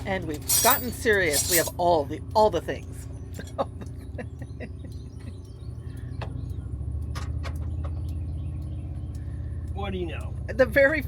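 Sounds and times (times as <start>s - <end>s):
hand tools clicking: 0.0s - 1.8s.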